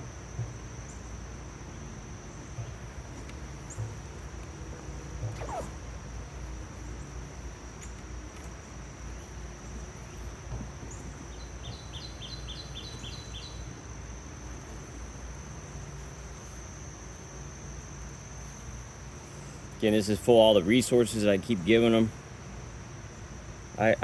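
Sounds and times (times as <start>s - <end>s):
high thin insect whine: 0.0s - 24.0s
honeybees humming: 0.0s - 24.0s
bird chirping: 10.9s - 13.6s.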